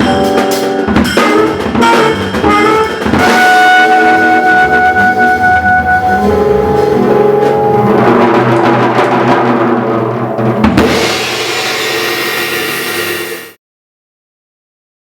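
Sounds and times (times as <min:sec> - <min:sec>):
jazz band chord: 0:00.0 - 0:11.5
trumpet note held: 0:01.2 - 0:08.7
cymbal and drum hit: 0:06.0 - 0:13.6.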